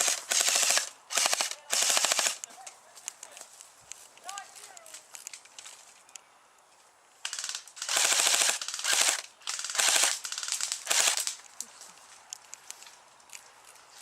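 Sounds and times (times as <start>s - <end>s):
airsoft guns firing bursts: 0.0s - 2.4s, 7.3s - 11.4s.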